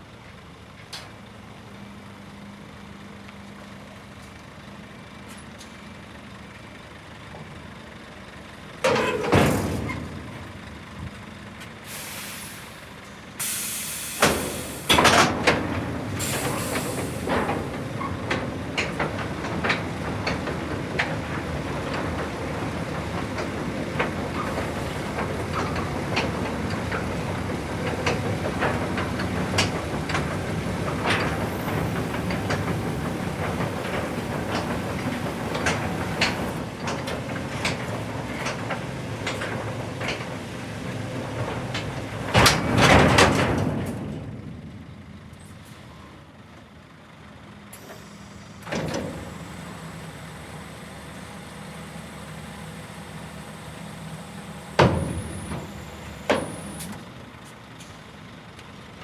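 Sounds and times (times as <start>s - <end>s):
truck engine running: 6.0s - 59.0s
clanks and knocks: 8.8s - 10.6s, 14.2s - 44.5s
air release hiss: 11.9s - 15.0s, 16.2s - 17.3s.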